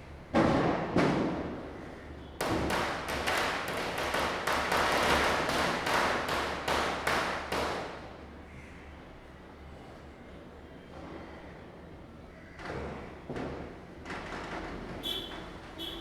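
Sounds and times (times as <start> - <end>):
fast string of firecracker cracks: 2.4 - 8.0.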